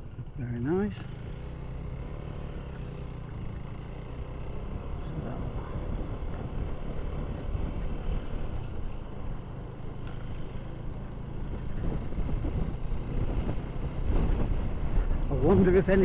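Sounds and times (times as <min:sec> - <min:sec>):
motorcycle engine running: 0:00.0 - 0:16.0
wind buffeting microphone: 0:11.3 - 0:16.0.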